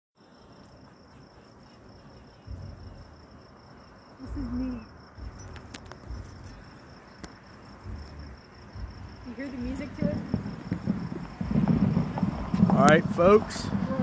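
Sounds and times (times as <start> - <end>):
crickets chirping: 0.2 - 14.0
distant fireworks booms: 1.9 - 14.0
sharp fireworks cracks: 5.2 - 14.0.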